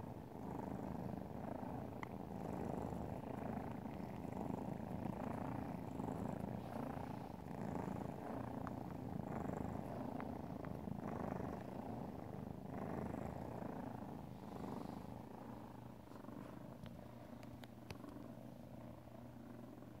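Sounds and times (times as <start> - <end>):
cat purring: 0.0 - 20.0
faint clicks: 2.0 - 2.2, 8.4 - 9.0, 10.0 - 10.8, 16.8 - 18.3.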